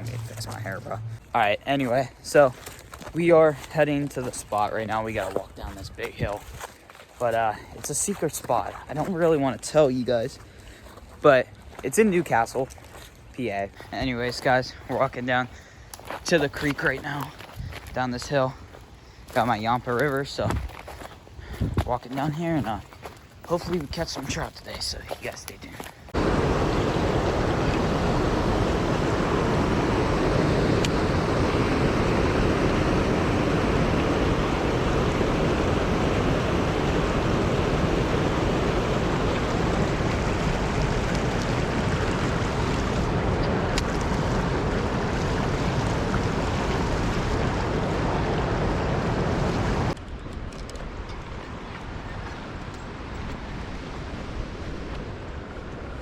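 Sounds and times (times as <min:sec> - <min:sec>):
creek and waterfall rushing: 0:26.1 - 0:50.0.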